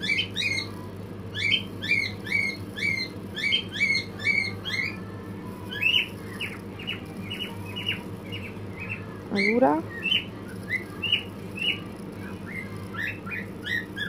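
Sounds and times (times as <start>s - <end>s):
bird chirping: 0.0s - 14.0s
steady low hum: 0.0s - 14.0s.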